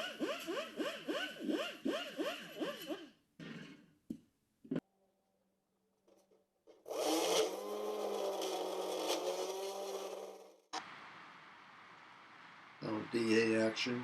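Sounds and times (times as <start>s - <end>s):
power tool on steel panel: 6.8s - 10.6s.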